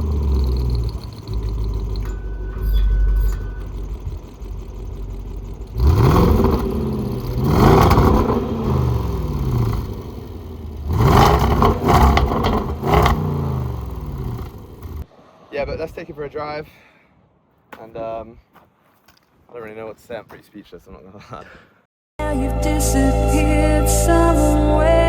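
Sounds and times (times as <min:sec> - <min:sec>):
car engine idling and revving: 0:00.0 - 0:15.1.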